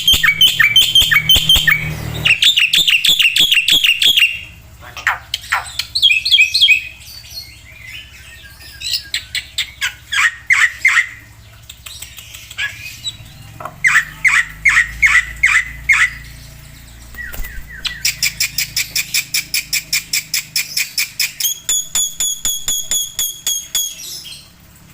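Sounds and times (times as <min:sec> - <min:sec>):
starling singing: 0:00.0 - 0:04.5, 0:12.5 - 0:24.5.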